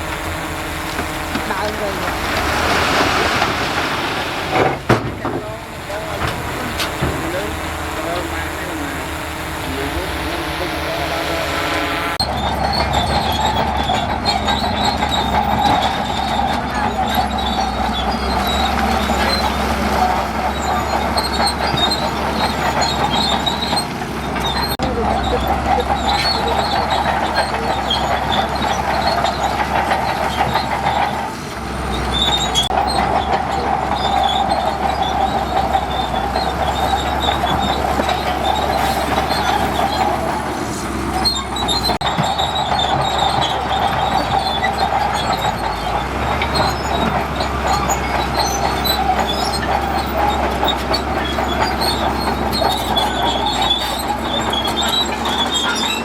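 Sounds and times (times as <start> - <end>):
high mechanical whine: 0.0 - 30.1
bulldozer engine and tracks clatter: 0.0 - 56.0.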